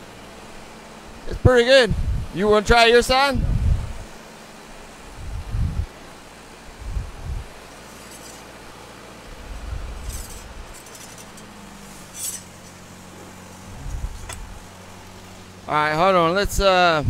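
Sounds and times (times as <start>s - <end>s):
low engine hum: 0.0s - 17.0s
wind on microphone: 1.9s - 2.4s, 3.3s - 4.1s, 5.0s - 6.0s, 6.8s - 7.6s, 9.3s - 10.8s, 13.6s - 14.8s
light metallic clinks and rattles: 7.6s - 8.7s, 9.9s - 15.4s.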